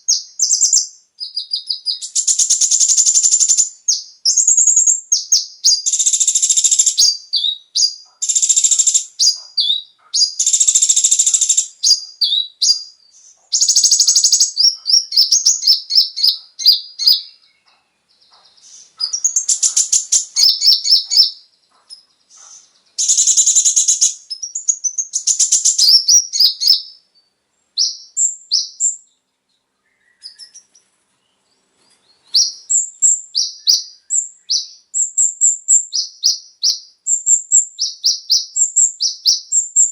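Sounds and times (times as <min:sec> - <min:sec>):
sunbird high trills and chips: 0:00.0 - 0:27.0.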